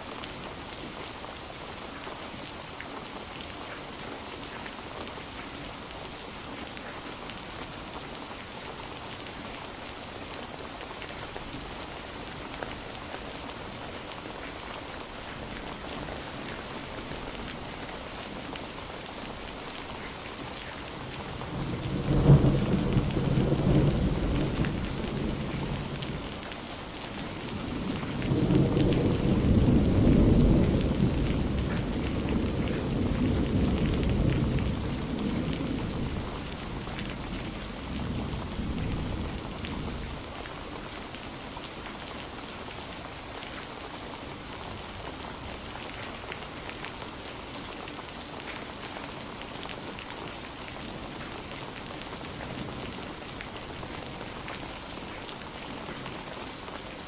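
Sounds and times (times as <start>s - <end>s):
steady rain: 0.0s - 57.0s
thunder: 21.4s - 26.3s, 27.6s - 39.7s.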